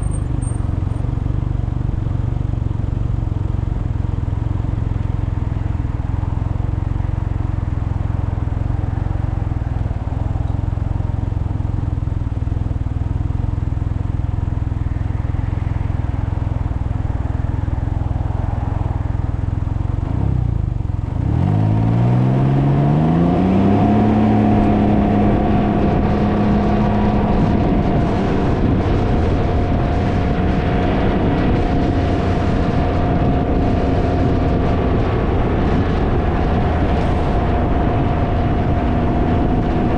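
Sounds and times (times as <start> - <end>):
engine rumbling and accelerating: 0.0 - 39.9
wind noise on microphone: 21.6 - 39.9.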